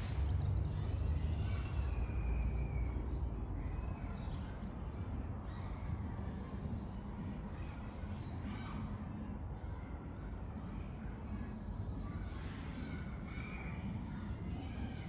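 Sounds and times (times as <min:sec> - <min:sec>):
distant road traffic rumble: 0:00.0 - 0:04.9.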